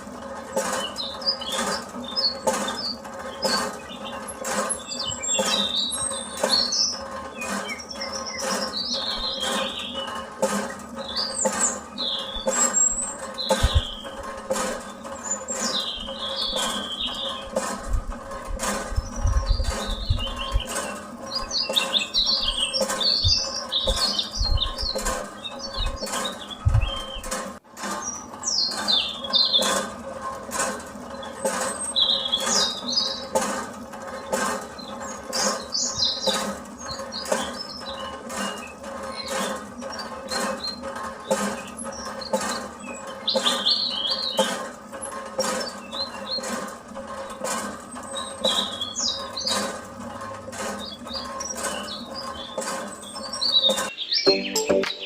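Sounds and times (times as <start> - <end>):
rapid clicking and rattling: 0.0 - 54.0
low thumps: 26.6 - 27.2.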